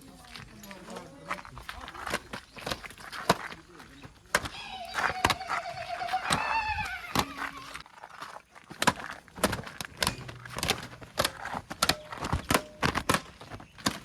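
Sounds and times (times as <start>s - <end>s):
sharp knocks and clicks: 8.8s - 14.0s.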